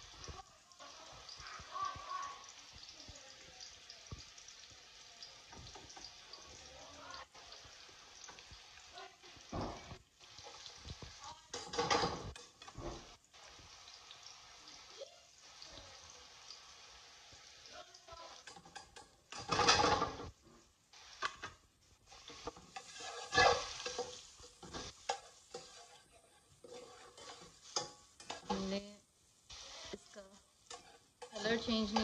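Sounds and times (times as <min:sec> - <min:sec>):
onion sizzling in oil: 0:00.0 - 0:32.0
metal spatula scraping pan: 0:10.3 - 0:13.2, 0:18.4 - 0:28.8, 0:30.6 - 0:32.0.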